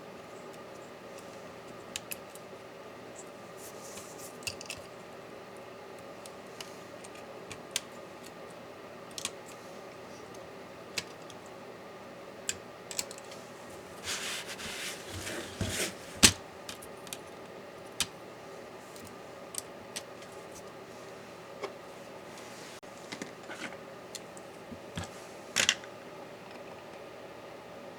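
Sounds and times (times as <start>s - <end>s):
scraping and rubbing: 13.9s - 16.3s.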